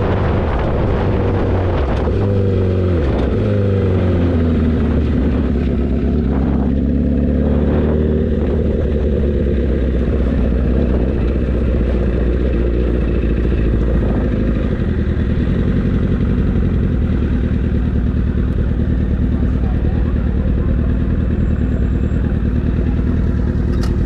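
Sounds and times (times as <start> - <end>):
motorcycle engine idling: 2.4 - 24.0.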